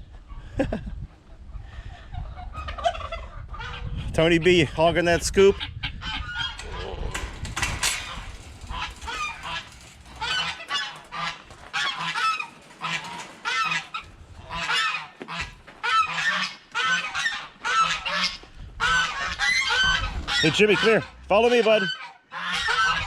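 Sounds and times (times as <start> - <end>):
poultry calling: 5.4 - 23.0.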